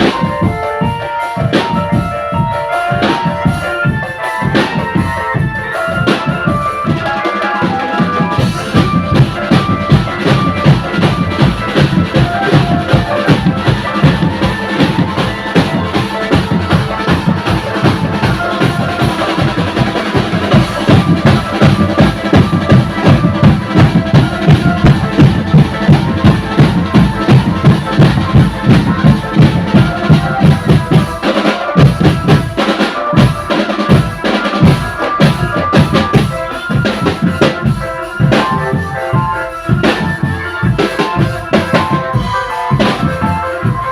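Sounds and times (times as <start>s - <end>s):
bass drums and snares beating: 0.0s - 43.9s
melody over drumming: 0.0s - 43.9s.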